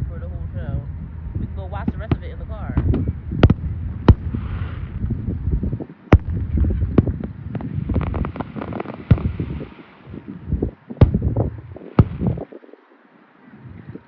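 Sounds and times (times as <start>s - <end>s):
steady low rumble: 0.0s - 14.0s
fireworks bangs: 1.8s - 5.0s, 6.1s - 10.0s, 10.9s - 12.5s
fireworks crackling: 3.4s - 12.8s.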